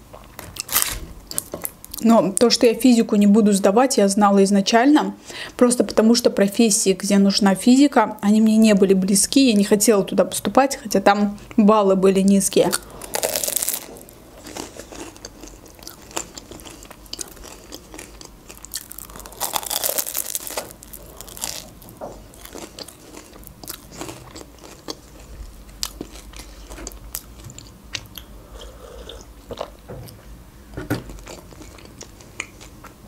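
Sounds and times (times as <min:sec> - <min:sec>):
crackly chewing: 0:12.6 - 0:29.8, 0:31.1 - 0:33.0
crunching bite of pastry: 0:12.7 - 0:29.7.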